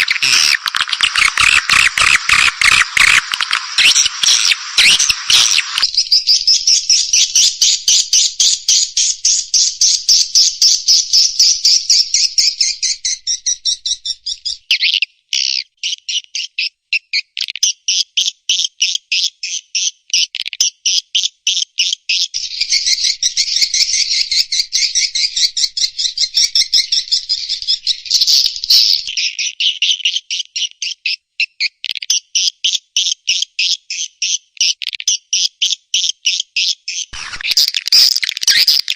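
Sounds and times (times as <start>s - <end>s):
high-pitched swiftlet chirps: 0.0s - 5.9s.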